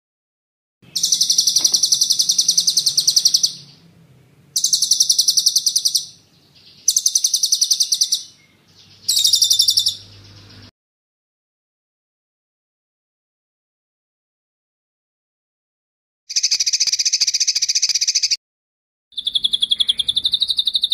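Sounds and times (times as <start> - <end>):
songbird rapid trill: 0.8 - 3.9, 4.5 - 10.7, 16.3 - 18.4, 19.2 - 20.9.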